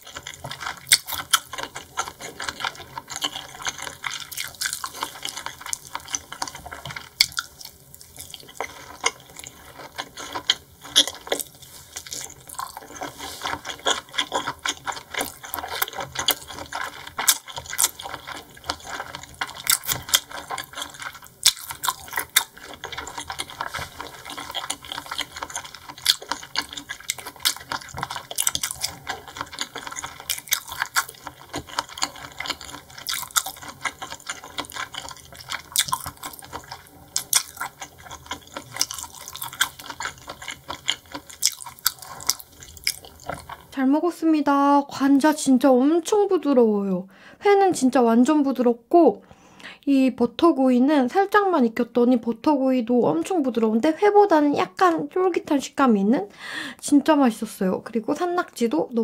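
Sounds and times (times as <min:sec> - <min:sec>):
wet chewing clicks and smacks: 0:00.0 - 0:43.8.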